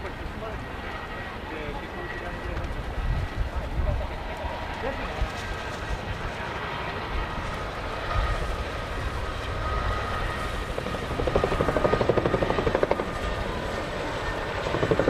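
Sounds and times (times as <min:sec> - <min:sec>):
helicopter engine rumble and whine: 0:00.0 - 0:15.0.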